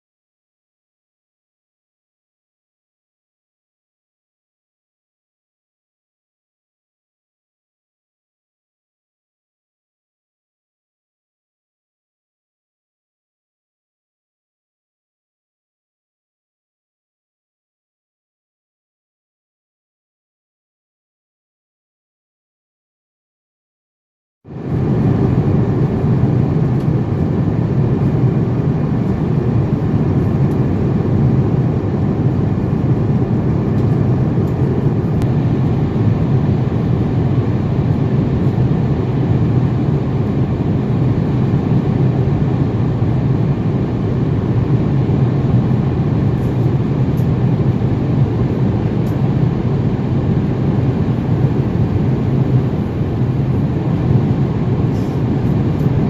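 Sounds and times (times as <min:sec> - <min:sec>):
jet engine rumble: 0:24.5 - 0:56.0.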